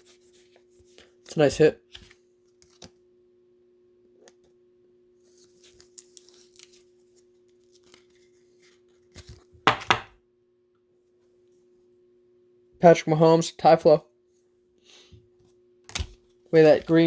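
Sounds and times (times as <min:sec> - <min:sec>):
trading cards rustling: 0:05.2 - 0:09.5, 0:15.9 - 0:17.0
card knock: 0:09.7 - 0:10.1.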